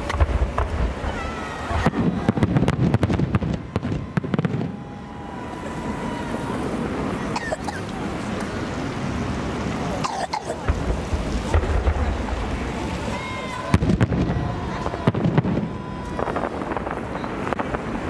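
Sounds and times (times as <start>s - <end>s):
crowd voices: 0.0s - 18.0s
fireworks bangs and crackling: 0.0s - 18.0s.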